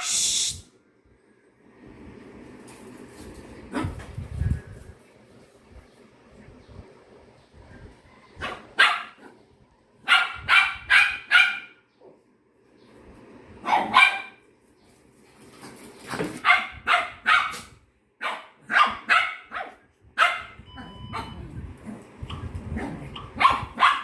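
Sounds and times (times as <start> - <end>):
dog barking: 8.2 - 9.4, 10.0 - 11.8, 13.6 - 14.4, 16.4 - 21.4, 23.2 - 24.0.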